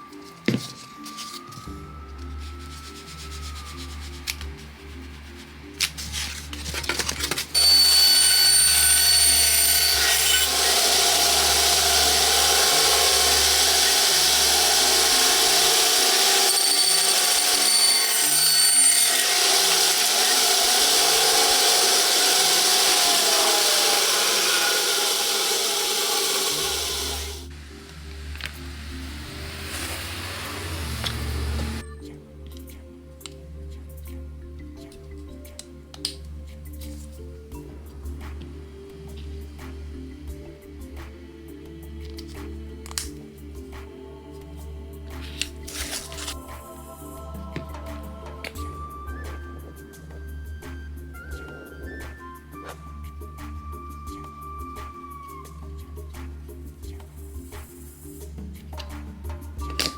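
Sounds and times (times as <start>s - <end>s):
background music: 0.0s - 59.9s
power tool whirring on wood: 7.5s - 31.8s.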